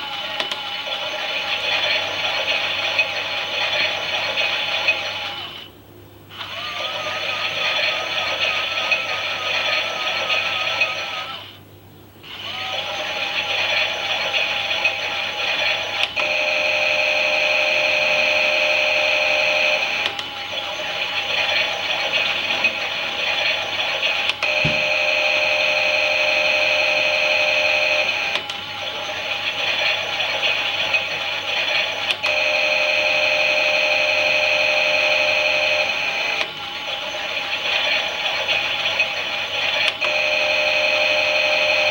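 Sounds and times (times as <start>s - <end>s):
toy washing machine whirring: 0.0s - 5.6s, 6.3s - 11.4s, 12.3s - 41.9s
small electric motor whining: 12.3s - 41.9s.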